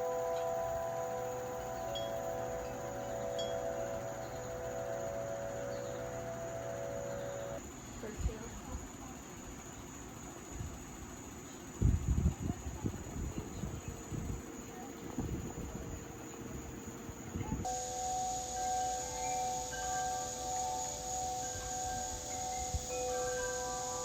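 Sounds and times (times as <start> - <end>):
held chord of ringing tones: 0.0 - 7.6, 17.7 - 24.0
crickets chirring: 0.0 - 24.0.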